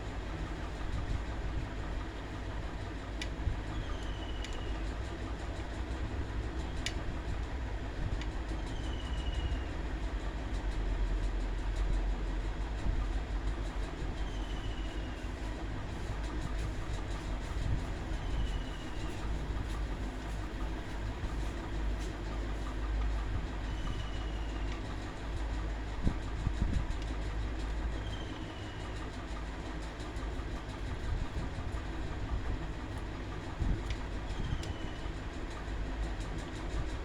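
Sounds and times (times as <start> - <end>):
electric fan humming: 12.5 - 37.0.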